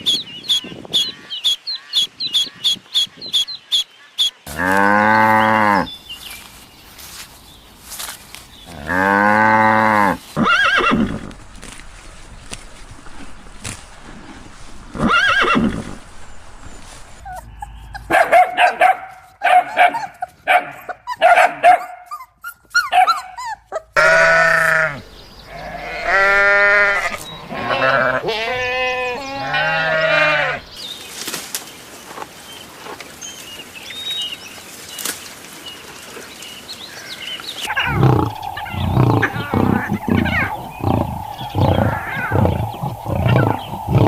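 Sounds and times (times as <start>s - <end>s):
goats bleating: 24.0s - 30.7s
short repeated animal calls: 37.7s - 44.0s.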